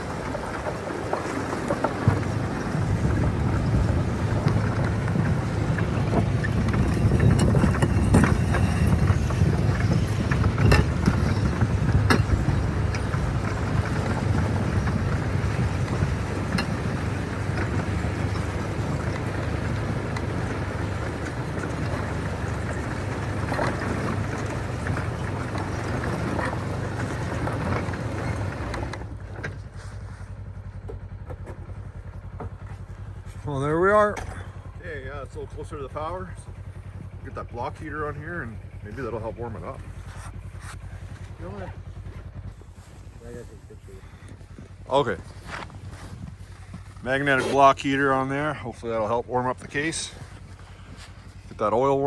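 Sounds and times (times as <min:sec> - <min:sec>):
engine running: 0:00.0 - 0:52.0
sharp clicks and clanks: 0:00.3 - 0:29.6.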